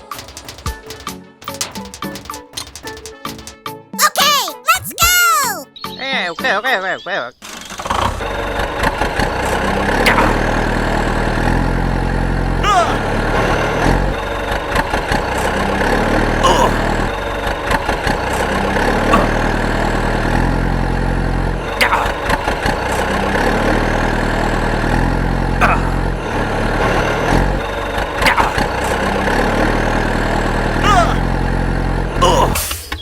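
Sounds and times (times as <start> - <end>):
vehicle engine running: 8.0 - 32.5.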